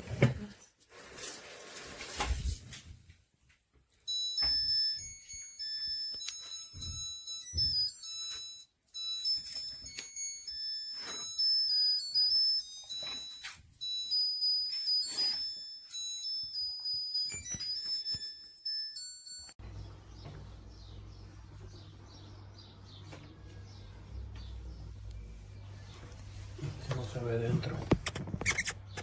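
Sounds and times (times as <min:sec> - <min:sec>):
electronic music with beeping melody: 0:04.1 - 0:17.9.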